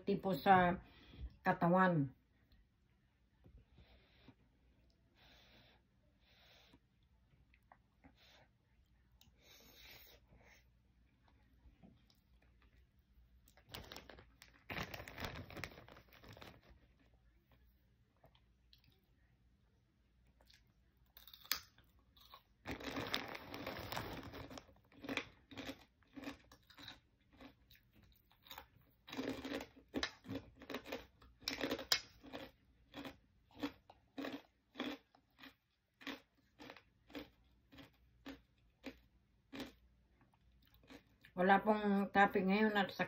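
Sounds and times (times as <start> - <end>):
chewing: 20.2 - 41.4
pork rinds crunching: 21.2 - 39.8.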